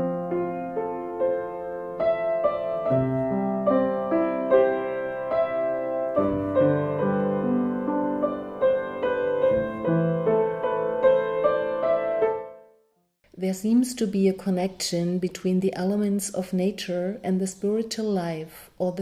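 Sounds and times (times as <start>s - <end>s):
soft piano music: 0.0s - 12.8s.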